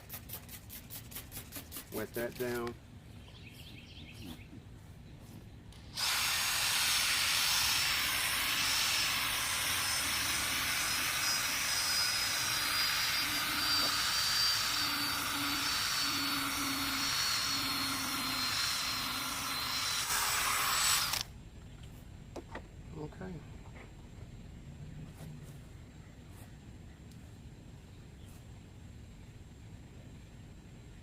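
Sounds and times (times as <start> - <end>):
power drill motor whine: 5.8 - 21.3.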